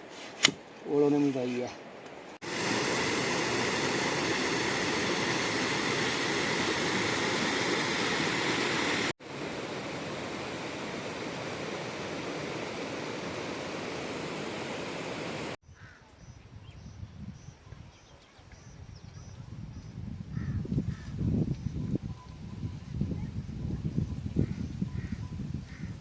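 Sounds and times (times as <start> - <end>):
rushing flowing water: 2.4 - 15.6.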